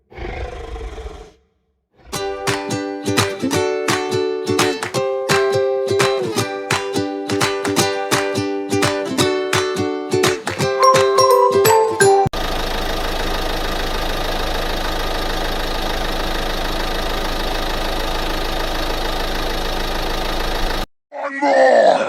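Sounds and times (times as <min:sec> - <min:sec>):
plucked ukulele music: 0:02.2 - 0:12.4
engine idling: 0:12.4 - 0:20.8.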